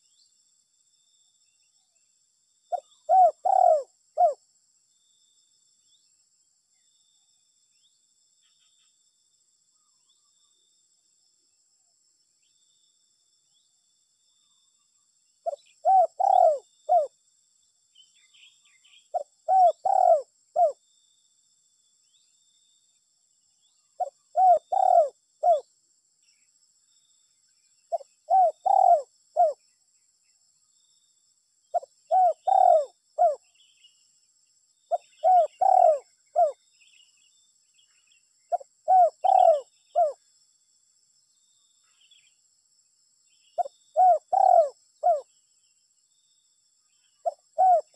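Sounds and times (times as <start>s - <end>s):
dove cooing: 2.7s - 4.4s, 15.5s - 17.1s, 19.1s - 20.8s, 24.0s - 25.6s, 27.9s - 29.6s, 31.8s - 33.4s, 34.9s - 36.6s, 38.5s - 40.2s, 43.6s - 45.2s, 47.2s - 47.9s.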